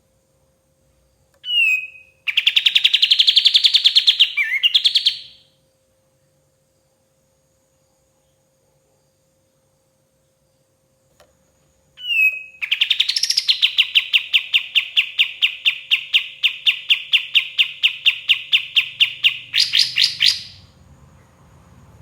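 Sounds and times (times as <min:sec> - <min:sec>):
bird singing rapid trill: 0:01.4 - 0:05.5, 0:12.0 - 0:20.8.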